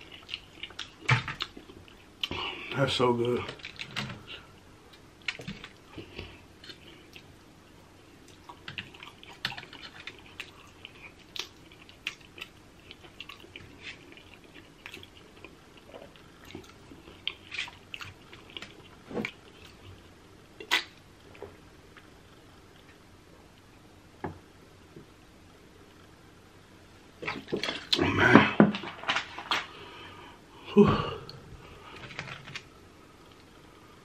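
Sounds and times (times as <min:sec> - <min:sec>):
person chewing and lip-smacking: 0:00.0 - 0:02.4, 0:08.2 - 0:20.0, 0:20.6 - 0:21.0.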